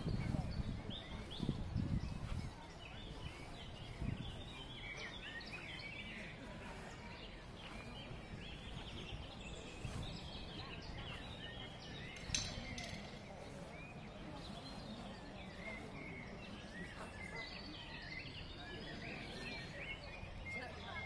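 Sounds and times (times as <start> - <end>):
songbirds chirping and singing: 0.0 - 21.0.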